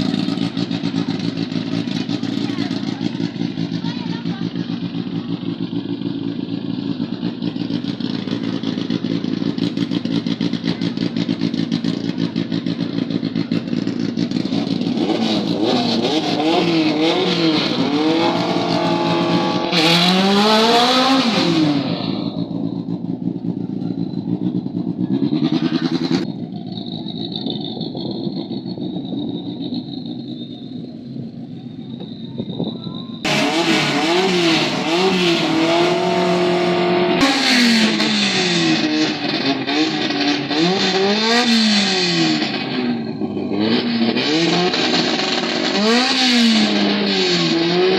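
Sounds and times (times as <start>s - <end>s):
drag race engine idling and revving: 0.0s - 47.9s.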